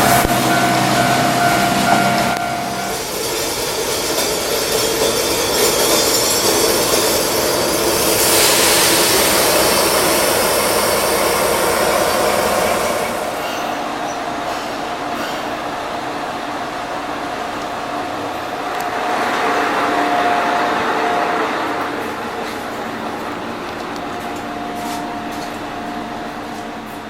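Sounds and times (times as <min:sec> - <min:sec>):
diesel engine tone: 0:00.0 - 0:03.1
train wheels rolling on rails: 0:00.0 - 0:27.0.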